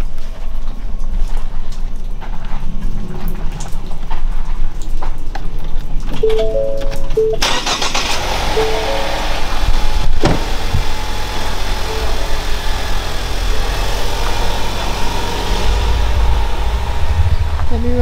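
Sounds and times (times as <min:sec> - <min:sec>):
vehicle engine running: 0:07.4 - 0:18.0.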